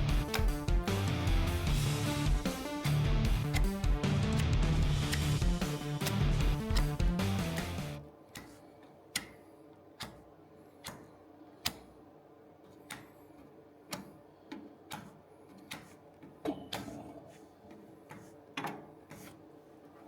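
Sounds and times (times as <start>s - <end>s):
guitar music: 0.0s - 8.0s.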